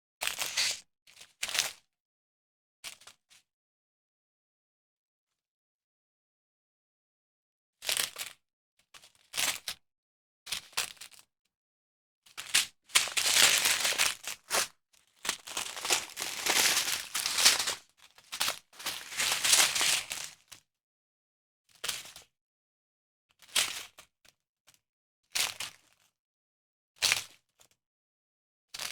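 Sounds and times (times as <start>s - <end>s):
packaging crinkling: 13.0s - 14.7s, 15.3s - 17.8s, 18.8s - 20.3s.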